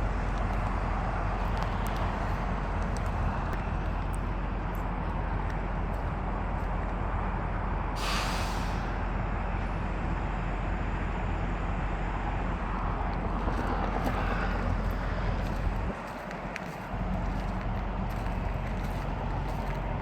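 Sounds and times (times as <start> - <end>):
diesel truck engines idling: 0.0 - 20.0
air hiss: 8.0 - 9.0.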